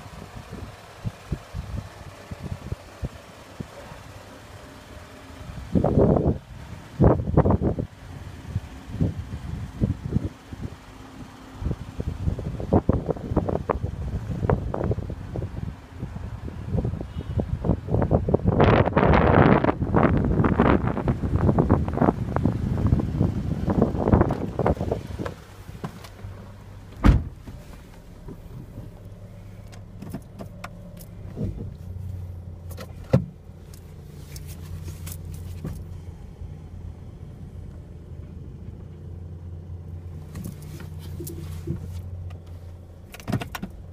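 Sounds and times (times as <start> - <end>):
car engine idling: 0.0 - 43.9
wind on microphone: 11.7 - 25.4
car door shutting: 24.1 - 29.0, 29.6 - 31.8, 43.1 - 43.8.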